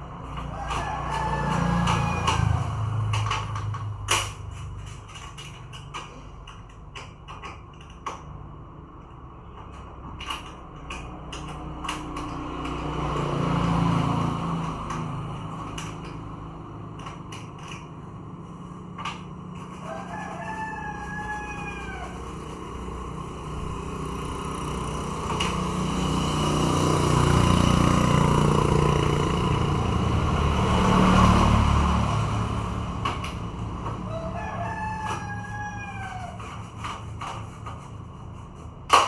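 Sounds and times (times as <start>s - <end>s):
rooster crowing: 0.4s - 3.5s, 19.6s - 23.2s, 33.8s - 37.0s.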